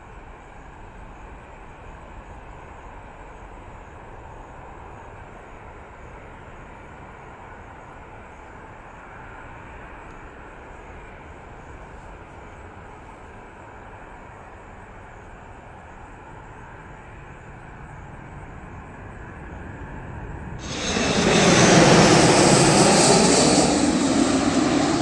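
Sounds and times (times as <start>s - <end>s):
airplane engine rushing: 16.6s - 25.0s.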